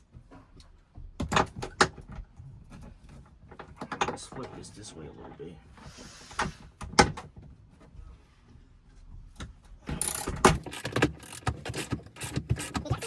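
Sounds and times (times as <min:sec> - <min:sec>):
ratchet wrench clicking: 0:10.0 - 0:13.0.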